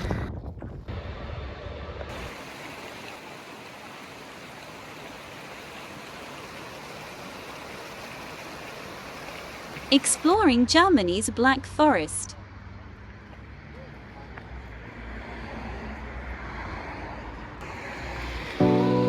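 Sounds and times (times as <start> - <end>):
rushing stream water: 2.1 - 12.0, 17.6 - 19.0.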